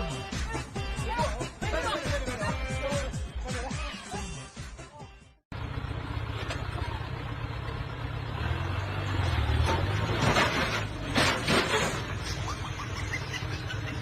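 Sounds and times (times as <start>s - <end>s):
vehicle engine rumbling: 5.5s - 14.0s.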